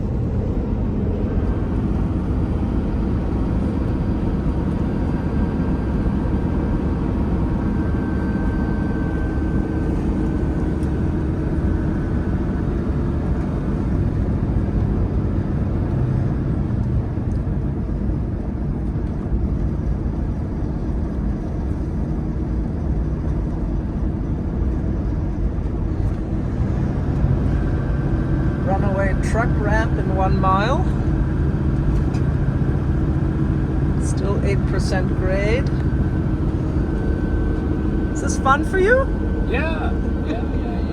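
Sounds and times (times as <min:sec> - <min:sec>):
truck engine and road drone: 0:00.0 - 0:40.9.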